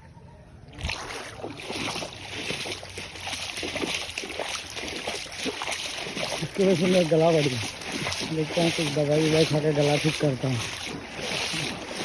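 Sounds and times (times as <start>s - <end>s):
floodwater splashing and sloshing: 0.7s - 12.0s.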